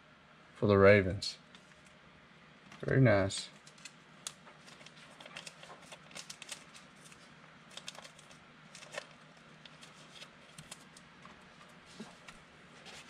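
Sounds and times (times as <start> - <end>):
trading cards flipped by hand: 3.6 - 11.4.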